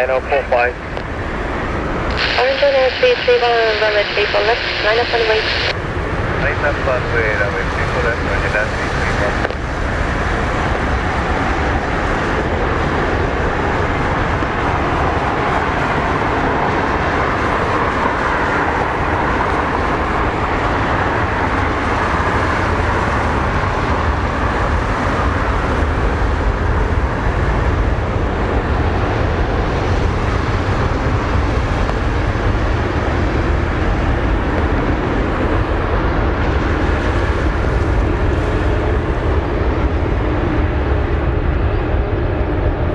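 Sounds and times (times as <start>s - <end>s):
jet engines at takeoff thrust: 0.0s - 42.9s.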